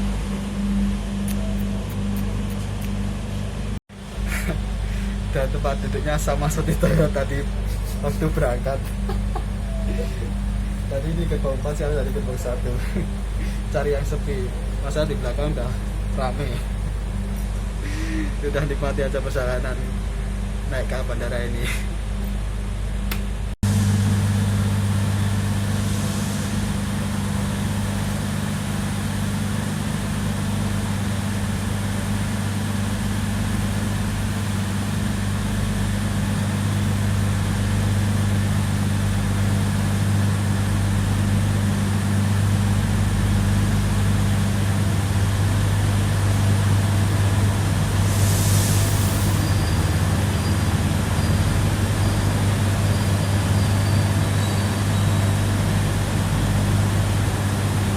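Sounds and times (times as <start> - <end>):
train carriage machinery hum: 0.0 - 17.8, 19.3 - 57.9
air conditioning running: 0.0 - 57.9
hiss of air: 24.2 - 29.2, 47.7 - 55.4.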